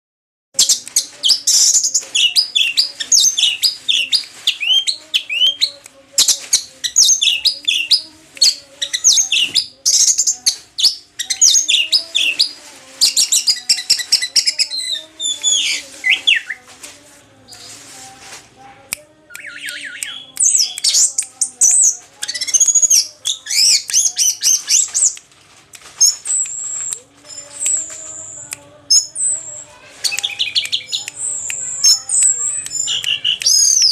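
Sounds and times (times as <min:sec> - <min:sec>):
thrush singing chirps and whistles: 0:26.0 - 0:33.9.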